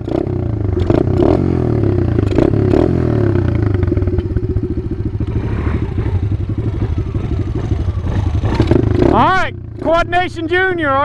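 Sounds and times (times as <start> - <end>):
small engine idling: 1.8 - 10.2.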